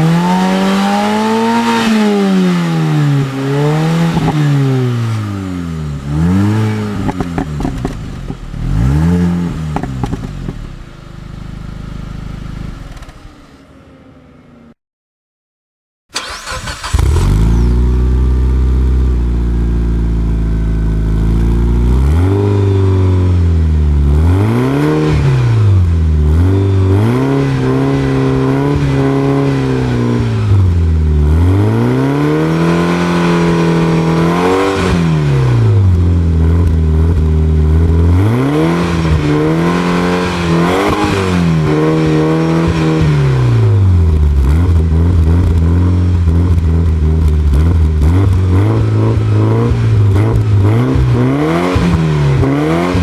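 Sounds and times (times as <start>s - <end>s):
car engine revving: 0.0s - 13.2s, 16.2s - 53.0s
car engine starting and idling: 16.1s - 21.3s.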